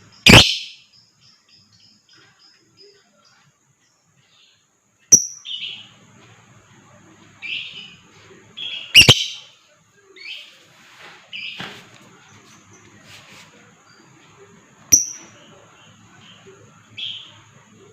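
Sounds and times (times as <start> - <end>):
bird shrill chirping: 0.0 - 3.0, 5.1 - 5.9, 8.6 - 9.6, 14.9 - 15.4.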